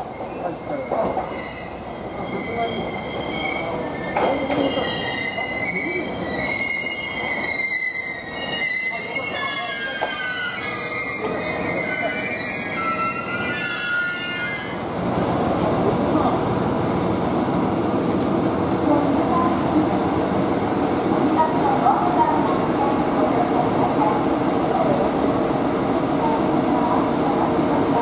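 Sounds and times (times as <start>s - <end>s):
train brakes squealing: 0.0s - 14.8s.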